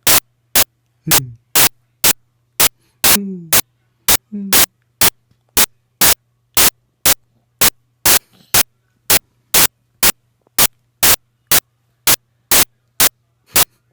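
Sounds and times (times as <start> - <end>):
bursts of hiss-like static: 0.0 - 13.8
faint steady hum: 0.0 - 13.9.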